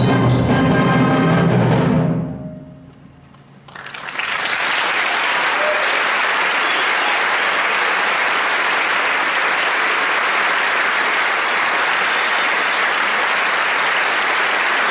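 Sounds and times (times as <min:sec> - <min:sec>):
audience applauding: 0:03.4 - 0:14.9.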